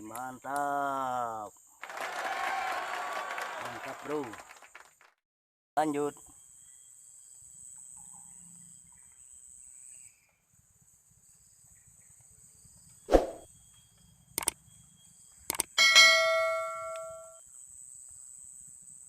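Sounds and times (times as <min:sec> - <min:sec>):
insects chirring: 0:00.0 - 0:01.8, 0:05.8 - 0:15.8.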